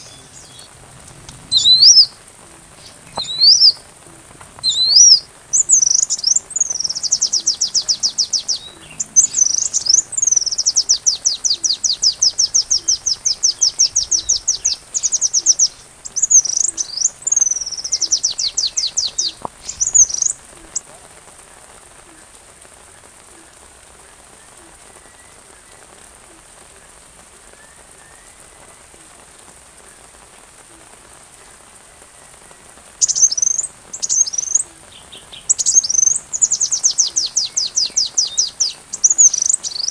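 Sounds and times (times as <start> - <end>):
sunbird trills and chirps: 0.0 - 21.0, 32.1 - 39.9
rain hiss: 0.0 - 39.9.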